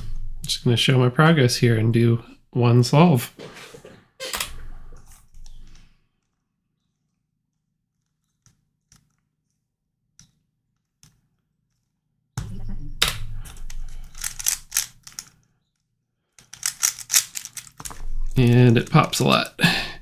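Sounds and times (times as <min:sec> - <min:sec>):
plastic puzzle clicking: 0:13.6 - 0:15.3, 0:16.4 - 0:19.6.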